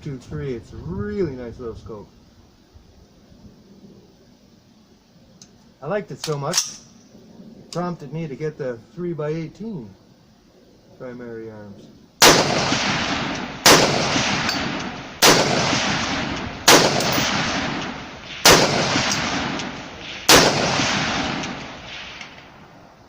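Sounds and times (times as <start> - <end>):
rifle shots: 12.2 - 22.7
rolling echo: 12.2 - 23.0.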